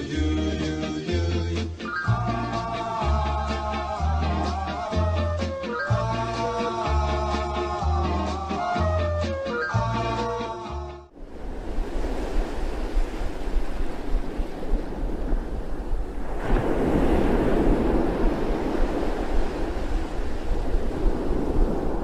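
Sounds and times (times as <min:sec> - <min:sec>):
music: 0:00.0 - 0:11.1
ocean surf washing in: 0:11.1 - 0:22.0
wind rumbling on microphone: 0:11.2 - 0:22.0.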